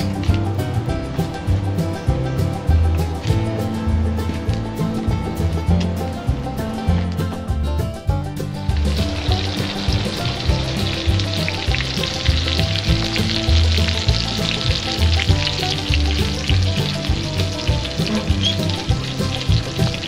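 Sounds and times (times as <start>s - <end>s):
music with bass beat: 0.0s - 20.0s
food sizzling in a pan: 8.7s - 20.0s.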